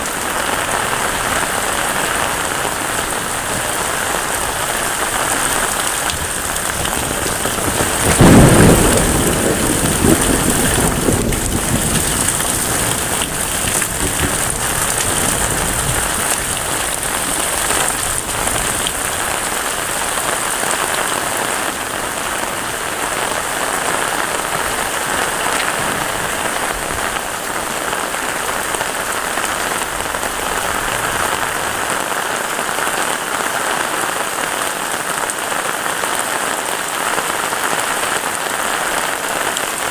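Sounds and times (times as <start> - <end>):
heavy rain falling: 0.0 - 39.9
thunder clap rumbling: 0.7 - 31.6.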